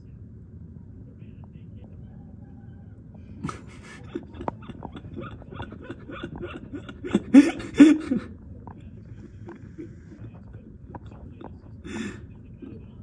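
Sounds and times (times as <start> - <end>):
shrieking laughs: 3.4 - 8.3
people laughing: 3.4 - 13.0.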